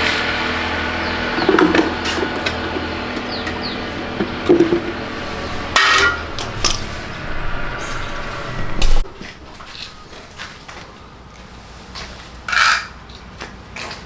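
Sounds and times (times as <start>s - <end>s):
steady hum: 0.0s - 10.4s.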